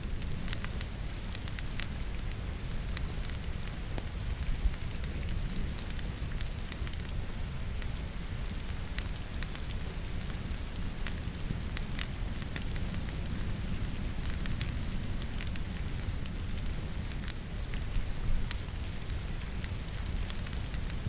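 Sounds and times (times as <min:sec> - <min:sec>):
rain falling: 0:00.0 - 0:21.0
wood fire crackling and popping: 0:00.0 - 0:21.0.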